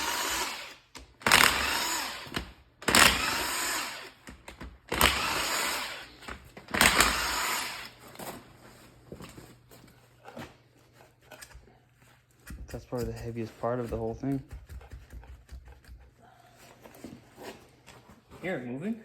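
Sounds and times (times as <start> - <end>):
power tool bursts: 0.0 - 4.2, 4.9 - 8.0.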